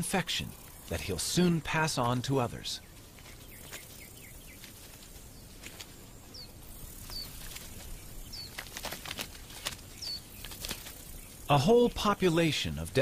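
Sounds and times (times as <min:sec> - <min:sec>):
faint outdoor background noise: 0:00.0 - 0:13.0
small bird chirping: 0:02.8 - 0:11.6.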